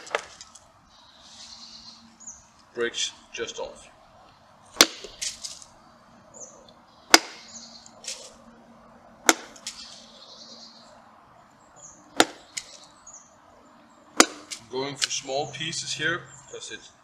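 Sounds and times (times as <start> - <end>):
knife chopping firewood: 0.0 - 0.5, 4.7 - 5.6, 7.1 - 8.3, 9.2 - 9.9, 12.2 - 12.8, 14.2 - 15.2
wood splitting and clattering: 0.0 - 0.6.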